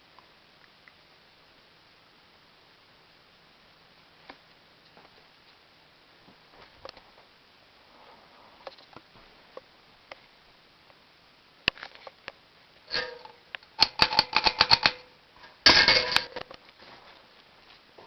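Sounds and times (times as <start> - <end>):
metal pull chains clicking: 12.9 - 15.1
faint metallic ring: 12.9 - 16.4.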